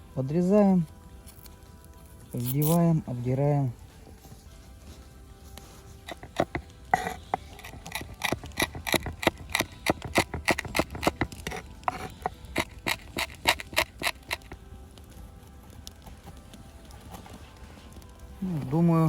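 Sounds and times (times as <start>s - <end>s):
knife scraping fish skin: 2.4s - 2.8s, 5.8s - 14.6s.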